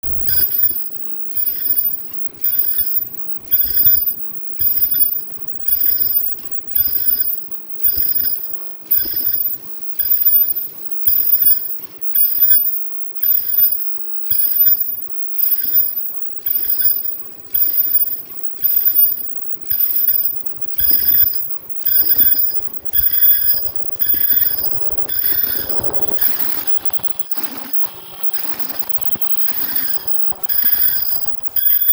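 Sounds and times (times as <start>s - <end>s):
ringing metallic chime: 29.4s - 31.9s.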